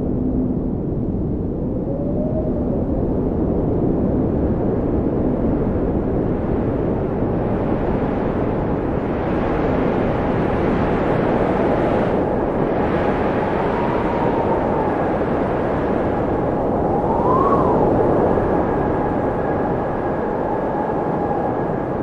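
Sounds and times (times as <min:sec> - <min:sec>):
wind blowing: 0:00.0 - 0:22.0.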